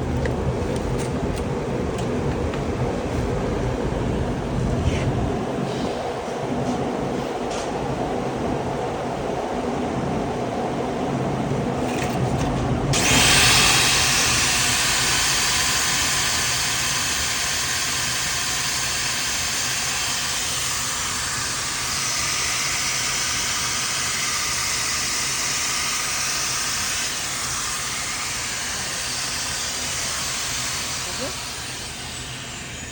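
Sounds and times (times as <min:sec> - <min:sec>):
vacuum cleaner motor running: 0:11.8 - 0:32.9.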